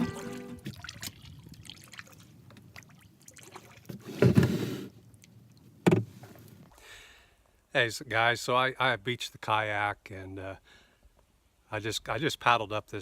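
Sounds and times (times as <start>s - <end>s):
paddle splash: 0.0s - 4.9s.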